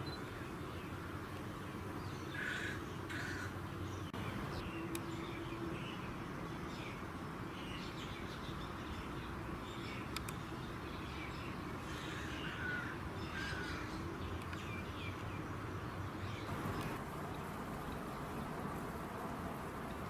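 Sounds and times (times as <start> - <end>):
background noise: 0.0 - 20.0
bird calls: 2.0 - 6.1, 7.6 - 15.4, 16.1 - 18.8.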